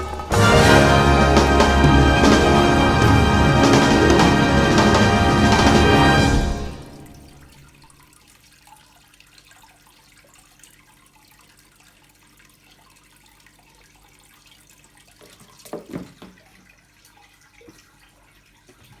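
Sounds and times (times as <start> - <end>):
water splashing: 0.0 - 11.0
water trickling and dripping: 0.0 - 19.0.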